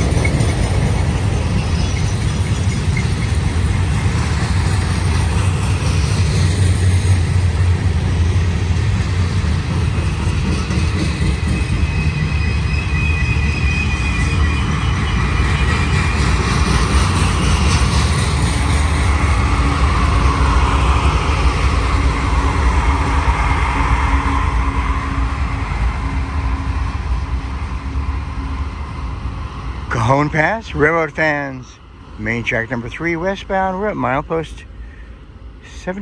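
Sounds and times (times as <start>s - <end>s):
diesel locomotive engine drone: 0.0s - 36.0s
train rumbling and clattering: 0.0s - 36.0s
thin wheel squeal: 11.6s - 16.2s.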